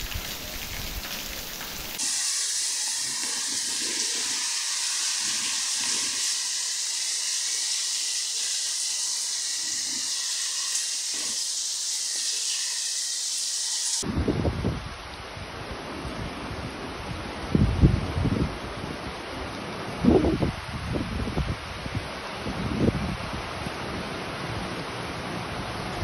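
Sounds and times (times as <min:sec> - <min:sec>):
rain falling on pavement: 0:00.0 - 0:02.0.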